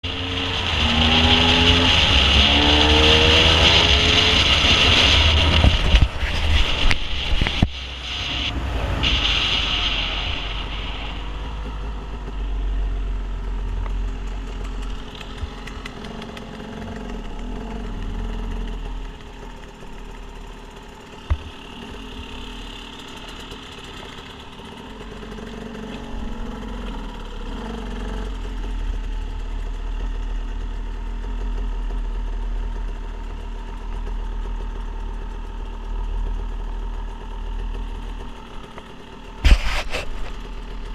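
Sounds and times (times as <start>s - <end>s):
loud hiss: 0.1s - 13.4s
motor running: 10.6s - 30.3s.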